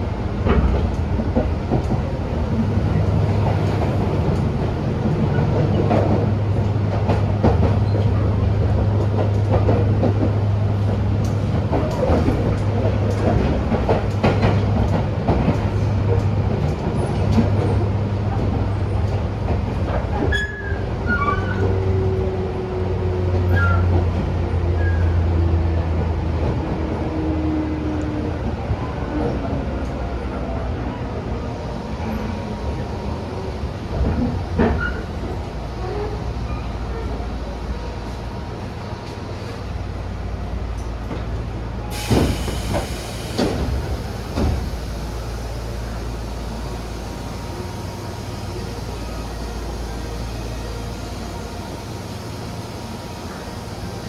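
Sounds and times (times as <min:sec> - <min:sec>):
electric train rumble: 0:00.0 - 0:54.0.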